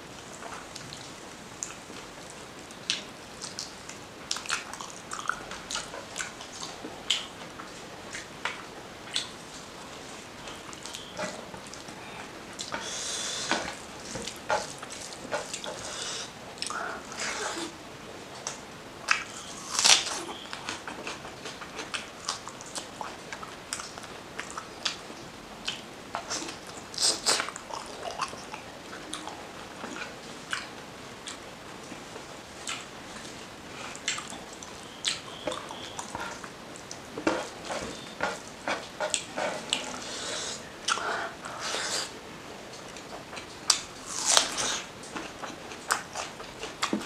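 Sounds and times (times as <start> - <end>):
wet chewing: 2.8 - 9.3, 25.6 - 32.0, 32.6 - 42.1, 42.7 - 47.0.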